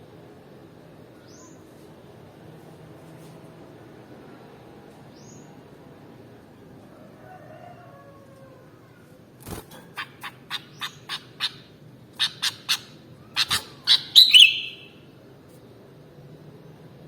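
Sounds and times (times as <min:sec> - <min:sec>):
bird chirping and warbling: 0:09.8 - 0:15.0.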